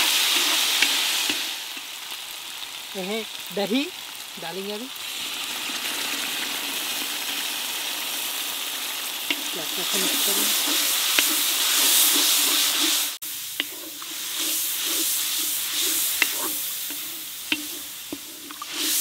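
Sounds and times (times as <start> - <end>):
food sizzling in hot oil: 0.0 - 19.0
spatula scraping metal pan: 9.5 - 19.0.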